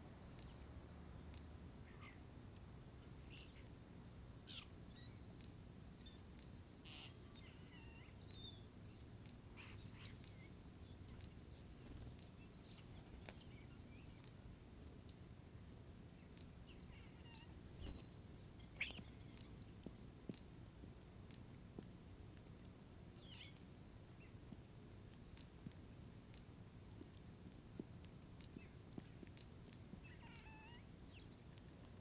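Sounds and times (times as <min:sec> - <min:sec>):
bird chirps and whistled calls: 0:16.7 - 0:19.5.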